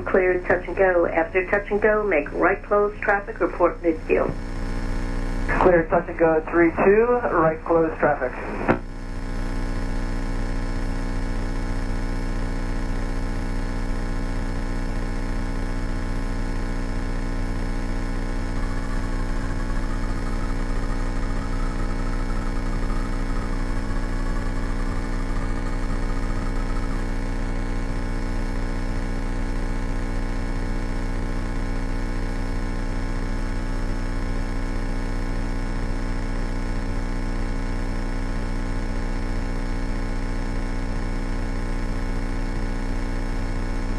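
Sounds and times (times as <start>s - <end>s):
light aircraft cabin drone: 0.0s - 4.5s, 5.4s - 8.9s, 18.0s - 27.6s.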